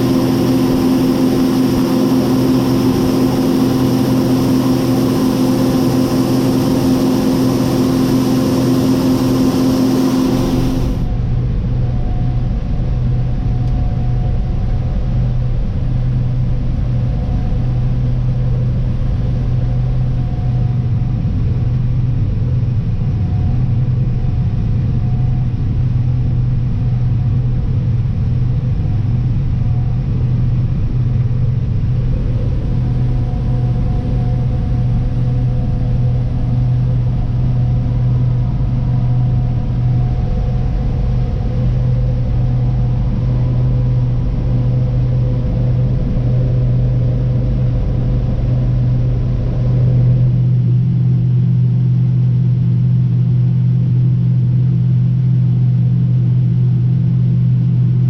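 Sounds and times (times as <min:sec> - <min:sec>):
diesel engine running: 0:00.0 - 0:11.8.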